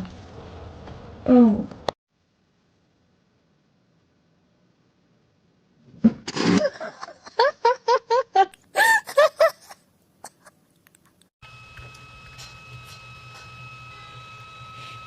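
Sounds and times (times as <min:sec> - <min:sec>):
person laughing: 0:06.6 - 0:10.6.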